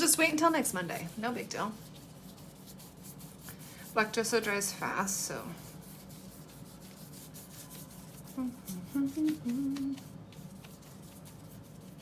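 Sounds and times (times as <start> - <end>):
paintbrush scratching on paper: 0.0 - 12.0
woman humming: 8.3 - 10.1.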